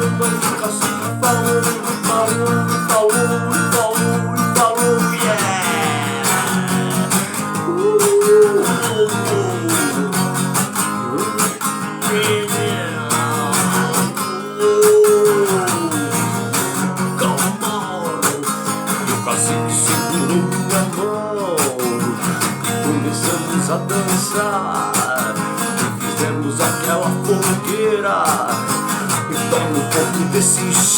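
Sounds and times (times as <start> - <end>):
lead guitar bent notes: 4.2 - 15.4.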